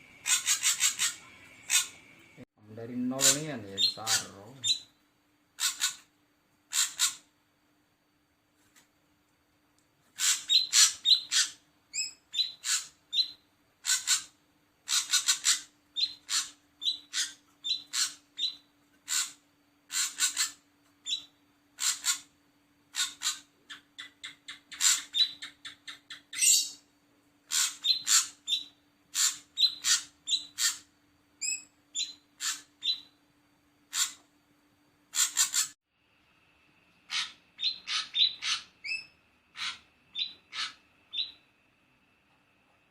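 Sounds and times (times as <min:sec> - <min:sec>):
faint steady hum: 0:00.0 - 0:42.9
bird calling harsh scratchy notes: 0:00.1 - 0:02.0, 0:03.0 - 0:04.9, 0:14.9 - 0:20.6, 0:32.0 - 0:33.0, 0:37.1 - 0:41.3.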